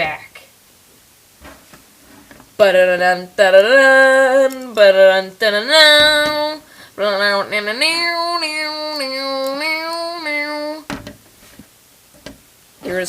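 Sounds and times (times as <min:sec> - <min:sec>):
young person singing: 0:02.6 - 0:10.9.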